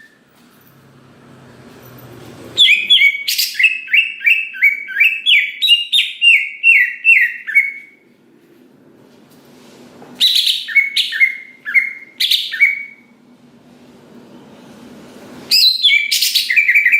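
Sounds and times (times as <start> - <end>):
bird singing down-slurred notes: 2.6 - 8.0, 10.2 - 13.1, 15.5 - 16.9.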